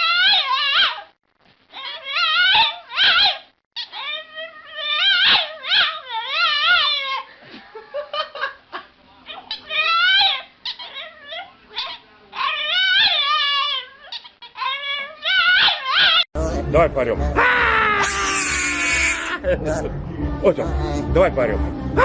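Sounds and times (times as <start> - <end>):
animal wavering calls: 17.4 - 19.4.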